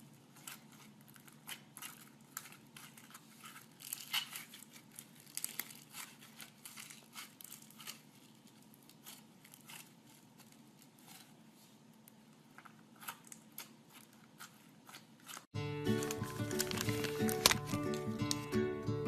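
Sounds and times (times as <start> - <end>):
slime squeezed with sticky crackles: 0.4 - 11.3.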